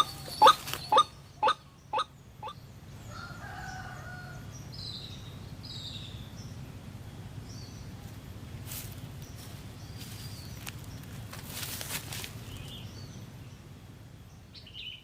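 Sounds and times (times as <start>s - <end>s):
faint bird calls: 0.0s - 4.4s
steady low hum: 0.0s - 15.0s.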